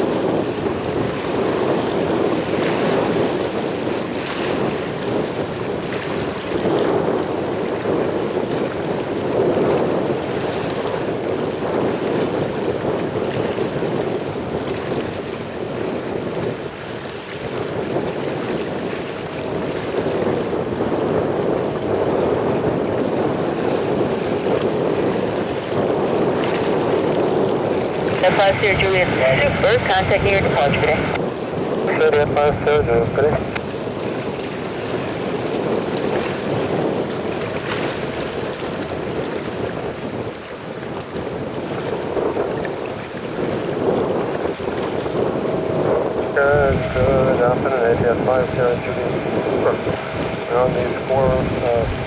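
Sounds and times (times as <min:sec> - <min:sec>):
wind buffeting microphone: 0:00.0 - 0:52.0
distant jet engines roaring: 0:26.5 - 0:33.8, 0:43.6 - 0:52.0.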